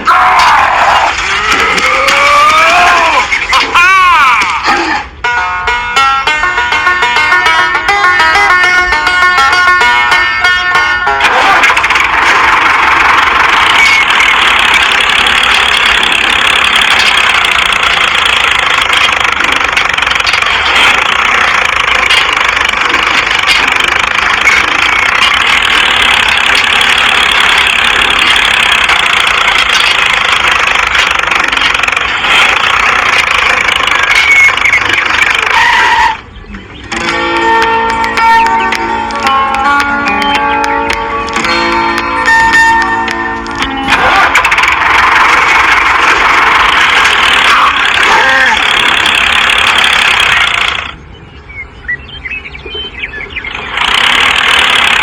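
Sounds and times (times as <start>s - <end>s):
mini tractor motor running: 1.1s - 4.5s, 5.2s - 51.2s, 53.2s - 55.0s.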